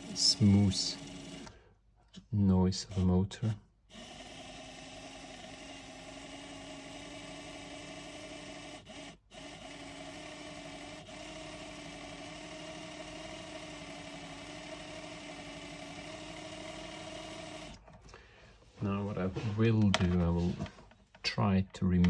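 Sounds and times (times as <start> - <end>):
model train motor whirring: 0.0 - 1.6, 2.8 - 17.8.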